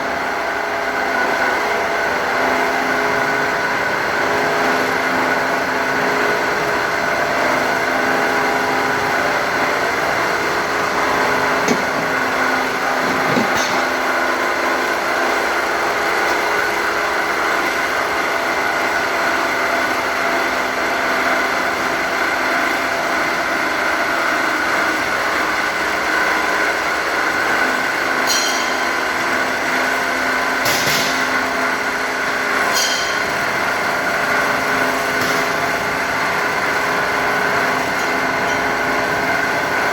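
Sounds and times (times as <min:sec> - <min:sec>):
cutting machine whine: 0:00.0 - 0:25.3.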